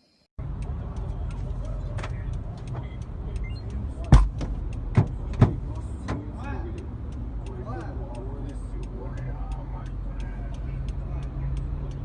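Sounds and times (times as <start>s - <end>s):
road and engine rumble: 0.4s - 12.0s
sharp thumps: 4.1s - 6.3s.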